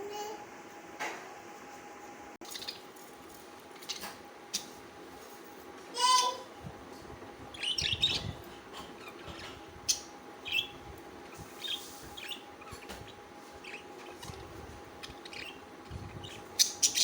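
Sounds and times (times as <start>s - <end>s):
budgerigars chirping: 7.5s - 17.0s.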